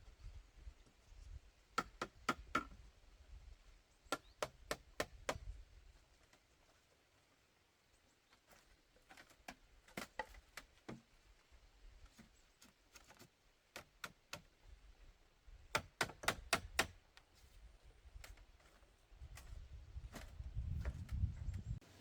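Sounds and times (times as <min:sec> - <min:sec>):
knocks and taps on bamboo: 0:01.7 - 0:02.8, 0:04.1 - 0:05.6, 0:08.5 - 0:11.1, 0:12.0 - 0:14.7, 0:15.7 - 0:17.3.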